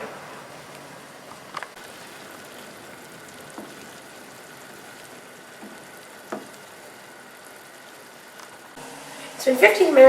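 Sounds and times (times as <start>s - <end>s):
sauce simmering in a pan: 0.4s - 9.9s.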